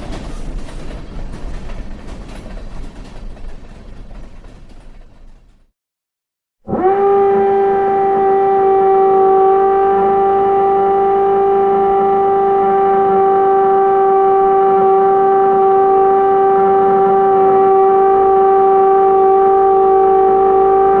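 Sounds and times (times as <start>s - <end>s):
loud steady tone: 6.7s - 21.0s.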